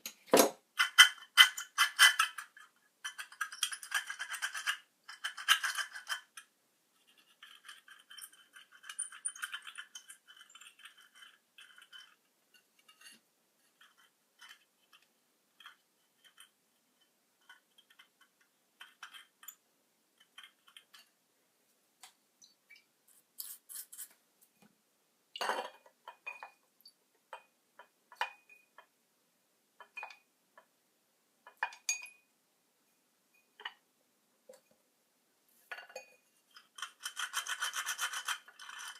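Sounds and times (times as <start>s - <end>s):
small clicks and clinks: 0.8s - 13.2s, 13.8s - 19.6s.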